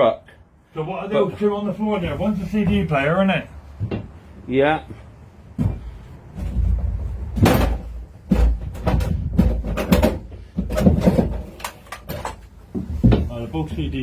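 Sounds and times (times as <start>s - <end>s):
low rumbling handling noise: 5.4s - 14.0s
knocks bumps and clatters: 5.6s - 13.4s.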